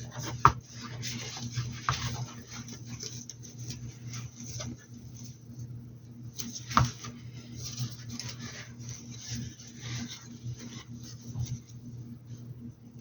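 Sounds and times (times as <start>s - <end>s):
steady low hum: 0.0s - 13.0s
paintbrush scratchy brushing: 6.5s - 11.8s.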